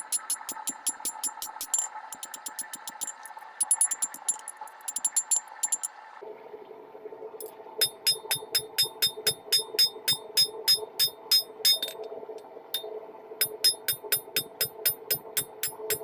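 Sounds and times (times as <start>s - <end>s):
steady hum: 0.0s - 16.0s
hammer ringing on anvil: 7.8s - 12.0s, 12.8s - 16.0s.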